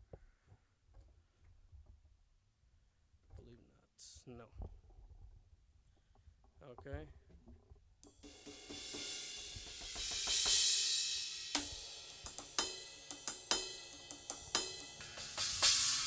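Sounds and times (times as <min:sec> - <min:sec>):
drum and cymbal hits: 0:08.0 - 0:16.0
cymbal wash: 0:08.1 - 0:16.0.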